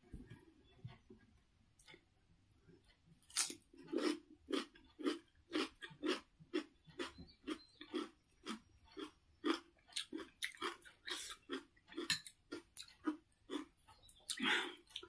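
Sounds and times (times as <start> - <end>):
crunchy cucumber chewing: 3.2 - 15.0.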